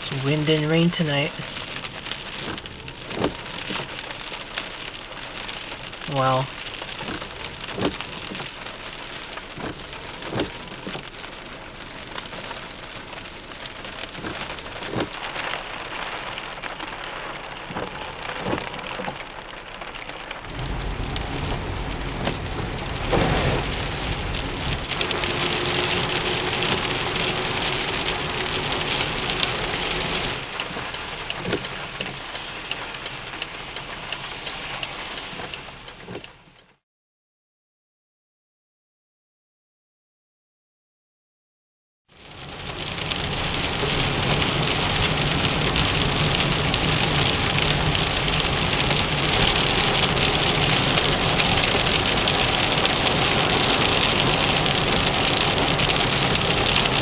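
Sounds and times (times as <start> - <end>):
heavy rain falling: 0.0 - 36.6, 42.2 - 57.0
raindrops tapping: 0.0 - 36.6, 42.6 - 57.0
deep rumble: 20.4 - 29.8.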